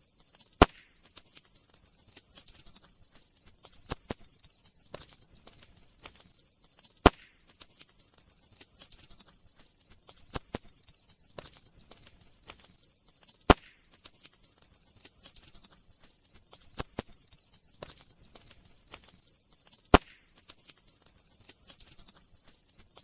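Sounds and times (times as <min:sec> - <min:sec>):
loud wood snaps: 0:00.6 - 0:01.5, 0:07.0 - 0:07.8, 0:13.5 - 0:14.4, 0:19.9 - 0:20.8.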